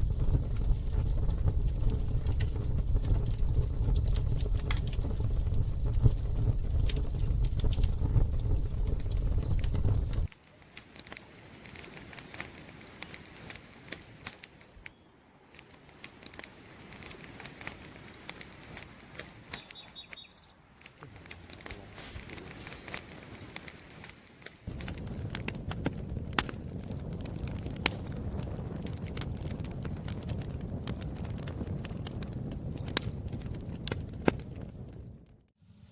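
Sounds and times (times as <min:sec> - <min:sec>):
campfire crackling and popping: 0:00.0 - 0:19.8, 0:20.7 - 0:35.6
faint high chirps: 0:18.6 - 0:20.6.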